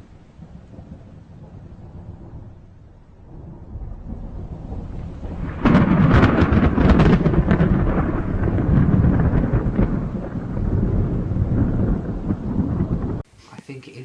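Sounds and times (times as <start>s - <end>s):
thunder crack and rumble: 0.0s - 13.3s.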